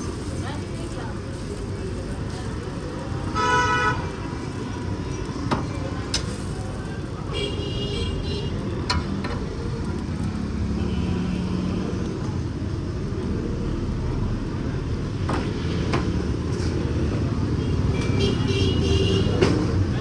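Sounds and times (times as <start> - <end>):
street traffic rumble: 0.0 - 20.0
vehicle horn: 3.4 - 4.2, 18.0 - 19.4.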